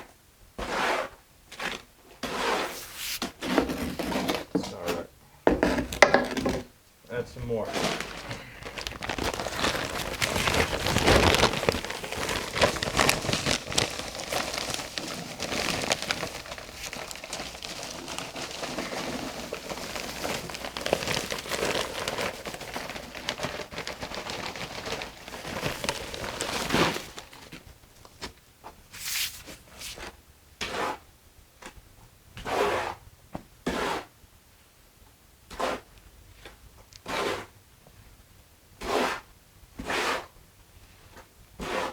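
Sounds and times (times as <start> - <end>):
mortar scraping by hand: 0.6 - 6.7, 7.6 - 23.0, 33.7 - 34.1, 37.0 - 37.5, 38.8 - 40.3, 41.6 - 41.9.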